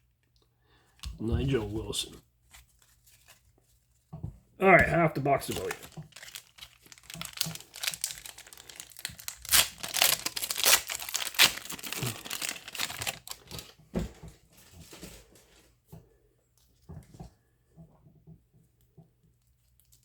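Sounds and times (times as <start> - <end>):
wrapper tearing and crinkling: 5.2 - 13.8.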